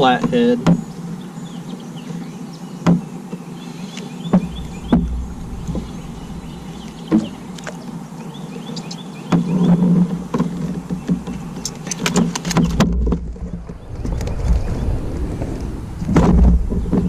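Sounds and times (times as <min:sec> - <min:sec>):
knocks and thumps on a kayak: 0:00.0 - 0:00.9, 0:02.8 - 0:03.1, 0:04.3 - 0:07.8, 0:09.3 - 0:14.2, 0:16.0 - 0:17.0
steady low hum: 0:00.0 - 0:17.0.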